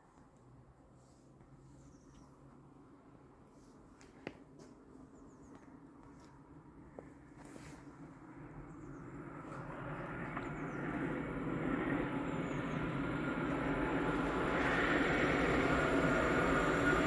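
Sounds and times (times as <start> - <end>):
freight train rolling rumble: 8.1 - 17.0.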